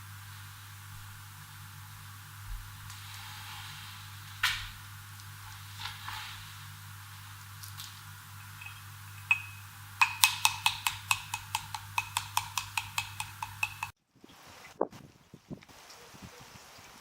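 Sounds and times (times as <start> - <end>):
low steady hum: 0.0 - 13.9
utensil beating against ringing bowl: 8.3 - 14.0.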